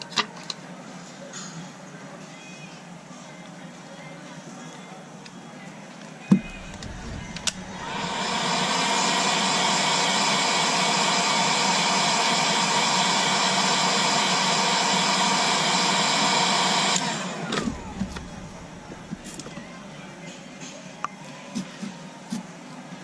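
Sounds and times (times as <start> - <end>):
hot-air blower hissing: 6.3 - 20.3.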